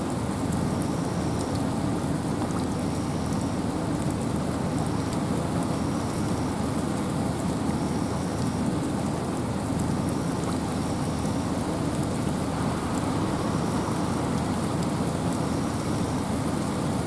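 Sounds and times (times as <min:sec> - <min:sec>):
rain hissing: 0:08.0 - 0:17.0
wind rumbling: 0:11.6 - 0:16.6.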